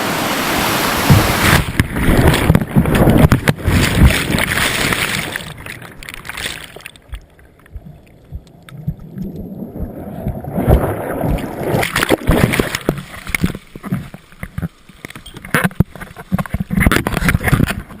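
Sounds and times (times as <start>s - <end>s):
sea water rushing and splashing: 0.0s - 14.3s.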